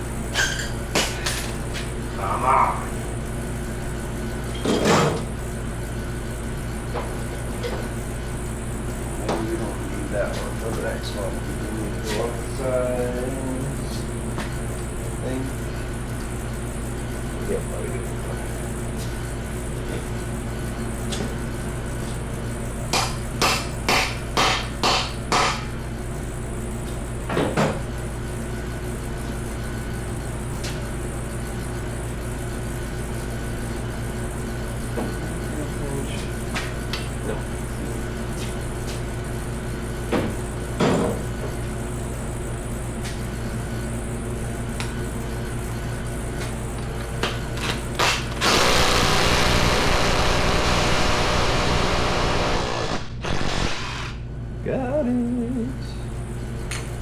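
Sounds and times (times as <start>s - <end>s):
steady low hum: 0.0s - 57.0s
hammer striking metal: 23.0s - 25.7s.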